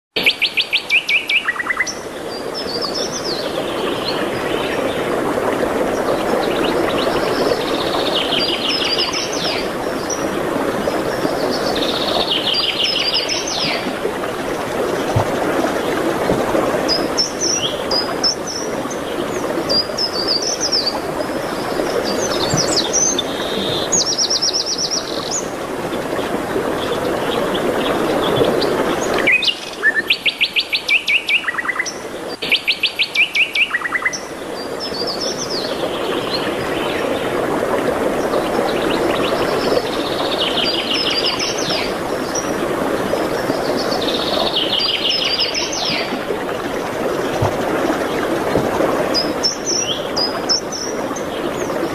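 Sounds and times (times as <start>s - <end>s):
birds singing and chirping: 21.8s - 25.5s.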